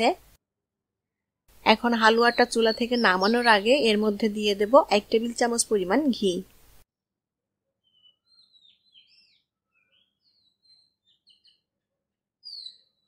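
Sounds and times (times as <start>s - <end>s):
birds chirping: 1.7s - 6.4s, 7.8s - 11.6s, 12.4s - 13.0s.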